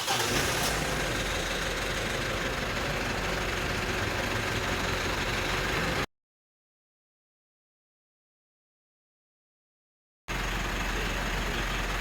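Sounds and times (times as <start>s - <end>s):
car engine idling: 0.0s - 6.1s, 10.3s - 12.0s.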